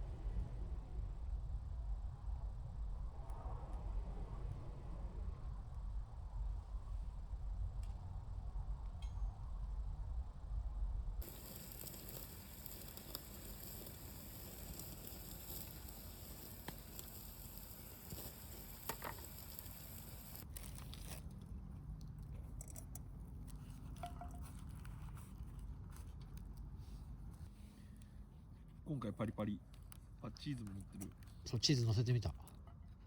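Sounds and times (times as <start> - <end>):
food sizzling in frying pan: 11.2 - 20.4
faint crackles and ticks: 11.2 - 33.0.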